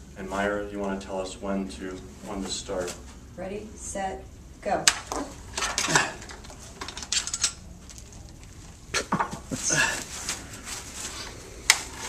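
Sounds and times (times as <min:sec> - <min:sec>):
screwdrivers clinking and scraping metal: 0:05.5 - 0:08.0.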